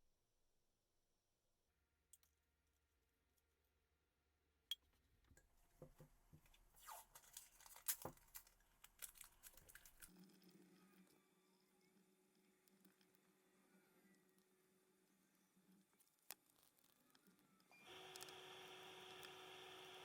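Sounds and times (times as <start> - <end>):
crinkling and crackling: 5.7 - 11.2, 15.9 - 17.7.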